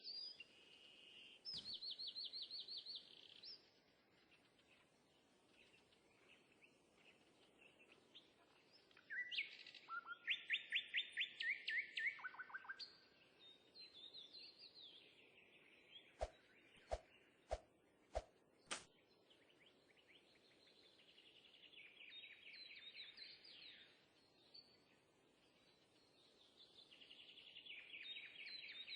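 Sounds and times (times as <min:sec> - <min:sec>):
birds singing in trills: 0:00.0 - 0:04.9, 0:05.5 - 0:28.9.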